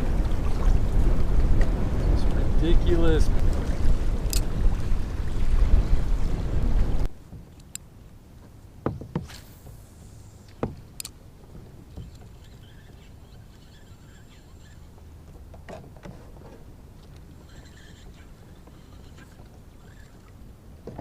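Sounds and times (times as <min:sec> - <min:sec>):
kayak gear knocks and clicks: 0:04.2 - 0:04.5, 0:07.3 - 0:07.9, 0:10.6 - 0:11.2, 0:15.3 - 0:17.3, 0:20.8 - 0:21.0.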